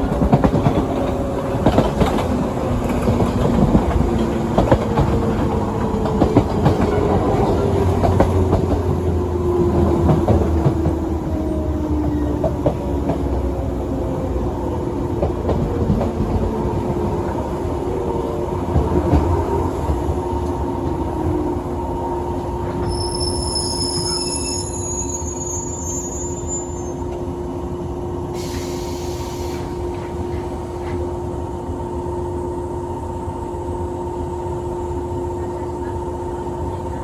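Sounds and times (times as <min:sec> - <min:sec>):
wheels clicking on rail joints: 0:00.0 - 0:11.1
train rumble inside carriage: 0:00.0 - 0:37.0.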